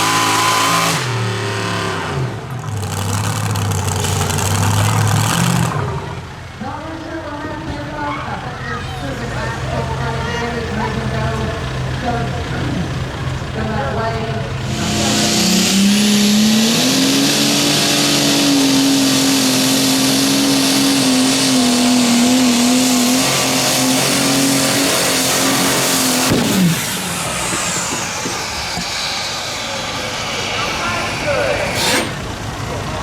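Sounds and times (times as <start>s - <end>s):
engine at full throttle: 0.0s - 33.0s
sharp crack: 25.5s - 29.4s.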